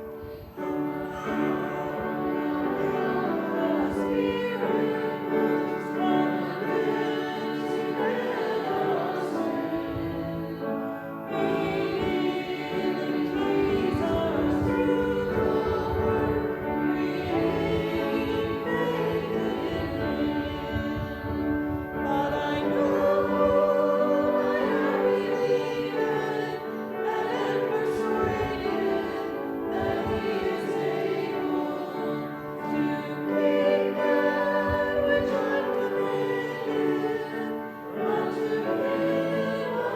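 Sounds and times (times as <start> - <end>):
congregation singing a hymn: 0.0 - 39.9.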